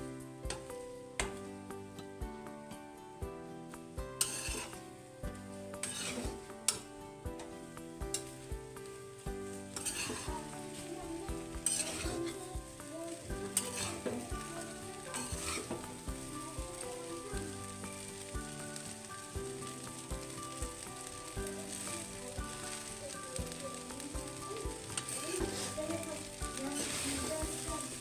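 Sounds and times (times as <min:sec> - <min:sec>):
rice sizzling in pan: 0:00.0 - 0:28.0
metal spatula scraping pan: 0:04.2 - 0:04.8, 0:05.8 - 0:06.9, 0:09.6 - 0:11.0, 0:11.6 - 0:12.5, 0:13.1 - 0:16.1, 0:24.8 - 0:28.0.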